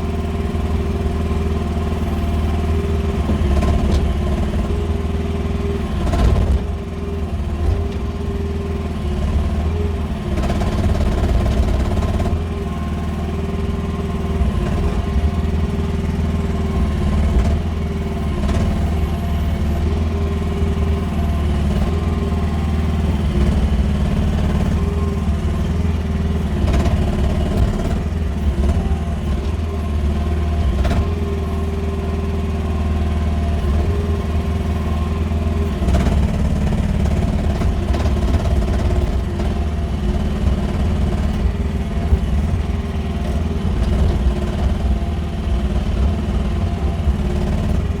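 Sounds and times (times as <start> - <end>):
excavator engine running: 0.0 - 48.0.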